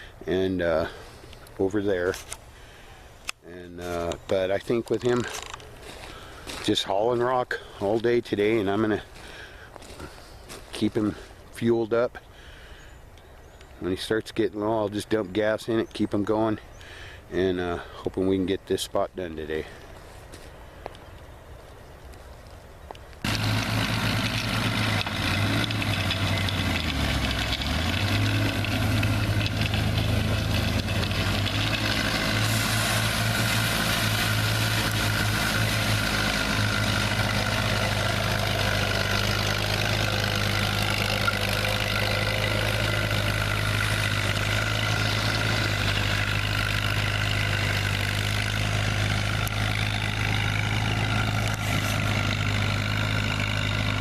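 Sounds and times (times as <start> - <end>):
heavy vehicle engine running: 23.2 - 54.0.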